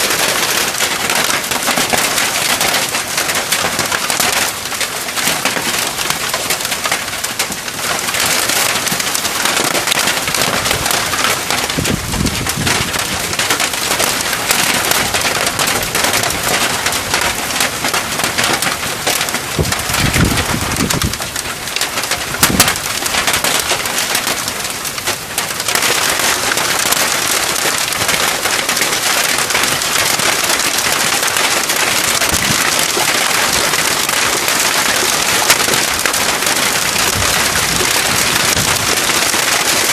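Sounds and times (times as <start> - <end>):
heavy rain and hail pelting: 0.0 - 39.9.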